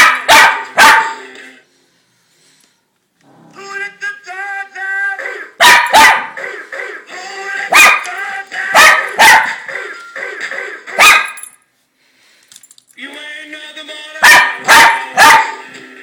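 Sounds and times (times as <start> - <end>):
dog barking: 0.0 - 1.2, 5.6 - 6.4, 7.7 - 8.1, 8.8 - 9.6, 11.0 - 11.4, 14.2 - 15.6
background music: 0.0 - 2.6, 3.3 - 11.6, 12.9 - 16.0.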